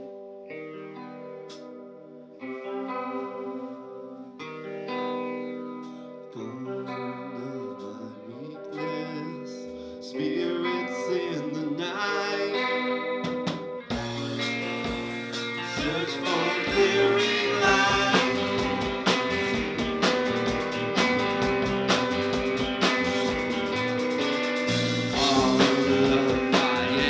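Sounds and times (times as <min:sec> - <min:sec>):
guitar with chorus effect: 0:00.0 - 0:27.0
drum hits: 0:13.4 - 0:27.0
low bass notes: 0:13.9 - 0:27.0.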